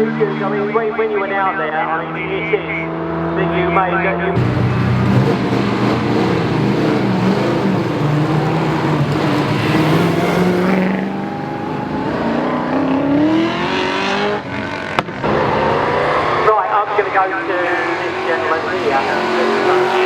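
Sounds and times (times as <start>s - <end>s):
rally car engine running: 4.3s - 20.0s.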